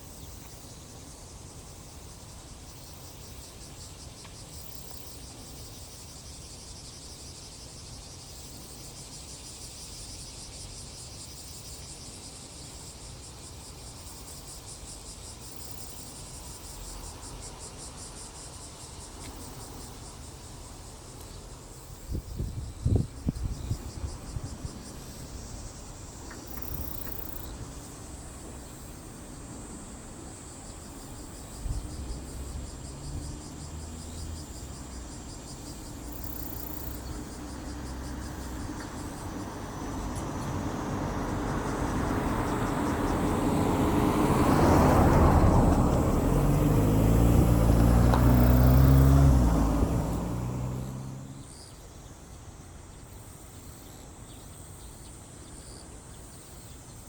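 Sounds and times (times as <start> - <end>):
vehicle engine passing by: 29.4 - 51.7.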